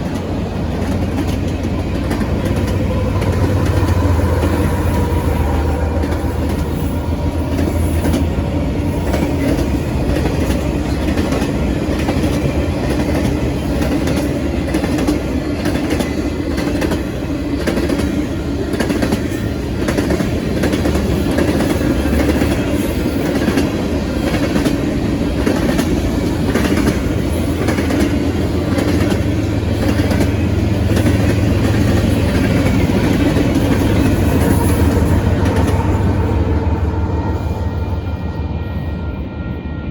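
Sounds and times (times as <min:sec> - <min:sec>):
wheels clicking over rail joints: 0:00.0 - 0:36.0
freight train rolling past: 0:00.0 - 0:39.9.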